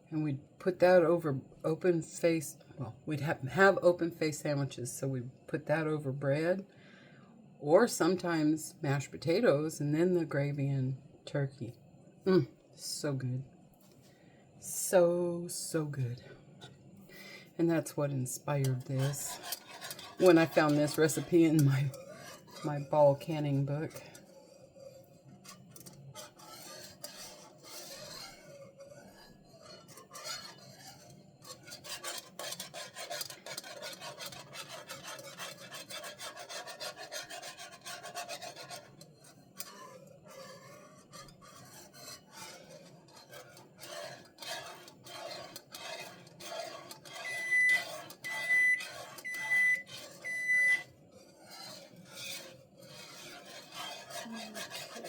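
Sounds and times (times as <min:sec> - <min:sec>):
utensil scraping a pot: 0:16.6 - 0:55.0
timer beeping: 0:47.2 - 0:50.8.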